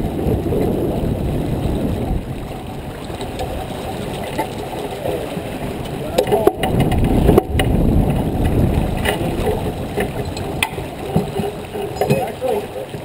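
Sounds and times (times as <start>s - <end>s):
wind and water rushing: 0.0s - 13.0s.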